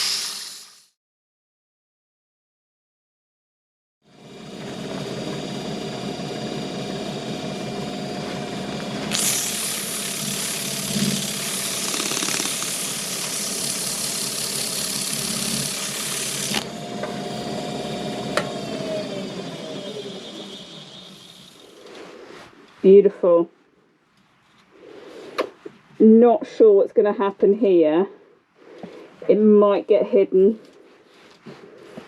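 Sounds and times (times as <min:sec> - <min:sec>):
sandpaper hissing on wood: 0:00.0 - 0:00.9, 0:09.1 - 0:16.6
wood lathe motor hum: 0:04.2 - 0:21.9.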